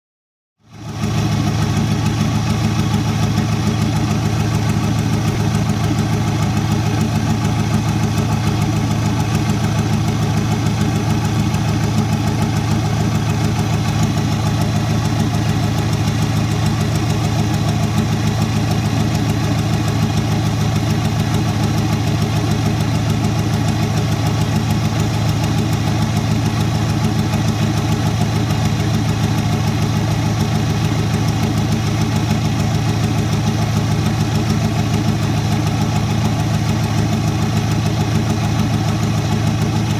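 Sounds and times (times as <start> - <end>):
diesel engine idling: 0.7 - 39.9.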